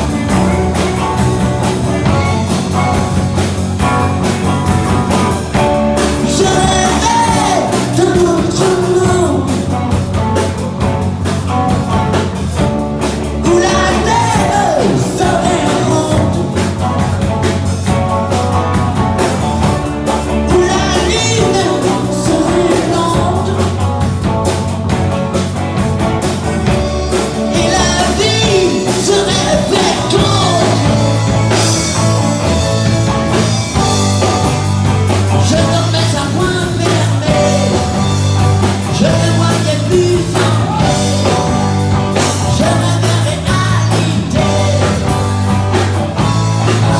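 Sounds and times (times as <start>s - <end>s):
rock band playing: 0.0s - 46.9s
person singing: 6.0s - 11.0s, 13.3s - 17.1s, 20.4s - 24.2s, 26.9s - 32.1s, 35.3s - 45.3s.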